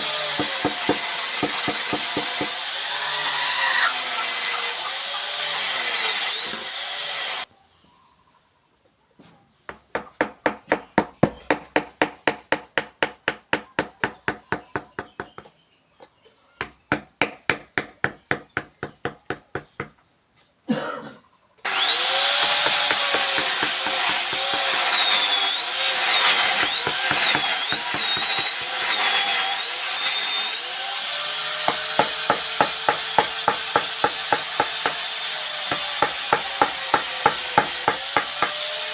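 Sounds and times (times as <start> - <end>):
power carving tool whining on wood: 0.0 - 7.5, 21.7 - 38.9.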